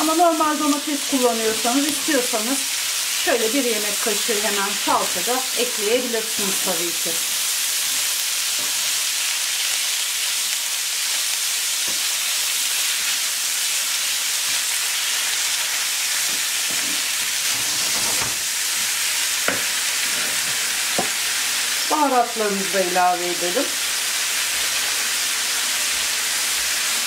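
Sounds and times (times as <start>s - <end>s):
meat sizzling in a frying pan: 0.0s - 27.0s
wooden spoon scraping a pan: 16.2s - 21.2s.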